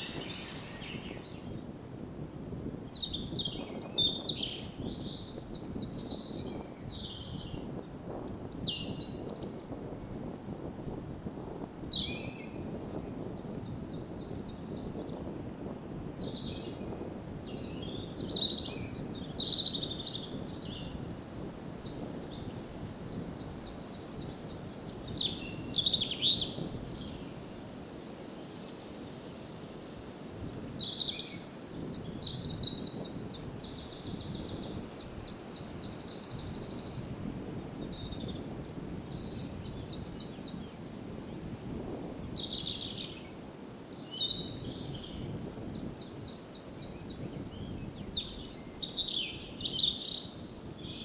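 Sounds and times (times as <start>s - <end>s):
songbirds singing: 0.0s - 1.6s, 23.3s - 28.0s, 30.5s - 41.4s, 42.4s - 51.0s
low rush of wind: 0.0s - 51.0s.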